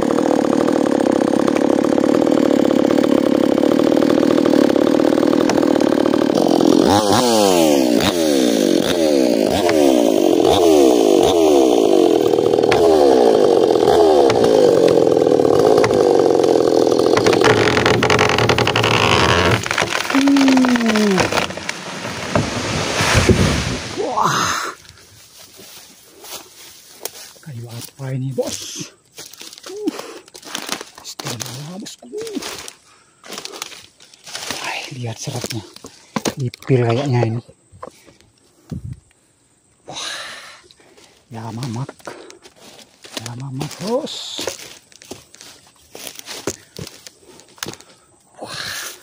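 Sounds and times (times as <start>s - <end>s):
chainsaw cutting wood: 0.0s - 24.5s, 30.3s - 30.9s, 32.4s - 34.7s, 41.6s - 47.9s.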